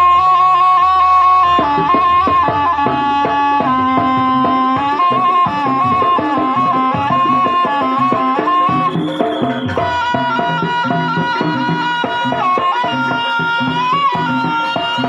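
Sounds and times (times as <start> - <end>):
hand drum rhythm: 0.0 - 15.0
shrill reed shawm melody: 0.0 - 15.0.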